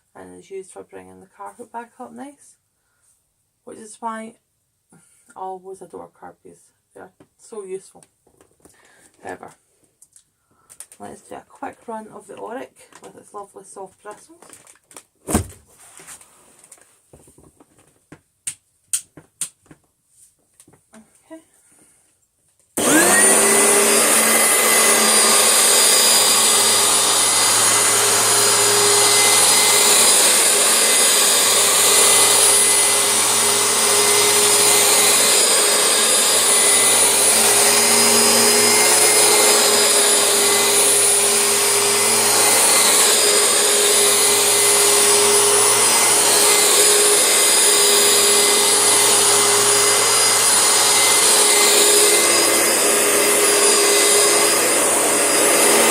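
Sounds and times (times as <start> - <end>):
vacuum cleaner motor whine: 22.8 - 55.9.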